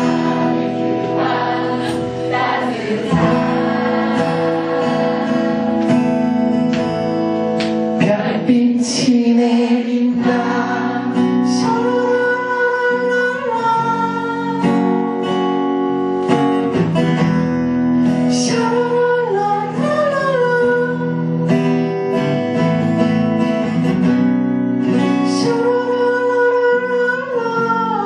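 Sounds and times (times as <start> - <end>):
person singing: 0.0 - 6.4, 8.0 - 14.8
strummed acoustic guitar: 0.0 - 28.0.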